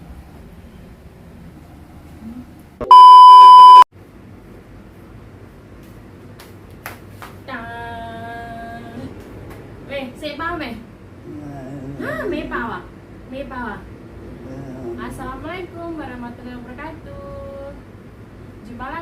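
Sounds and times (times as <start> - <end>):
loud electronic beep: 2.8 - 3.9.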